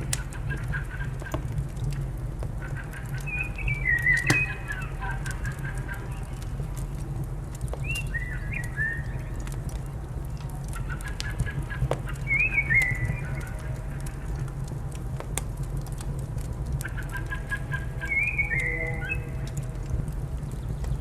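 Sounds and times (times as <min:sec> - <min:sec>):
wood fire crackling and popping: 0:00.0 - 0:21.0
bird calling: 0:02.6 - 0:05.0.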